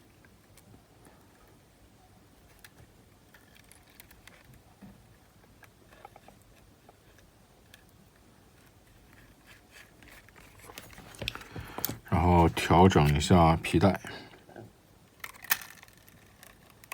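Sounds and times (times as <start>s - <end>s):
small parts clicking and tapping: 15.2s - 16.9s.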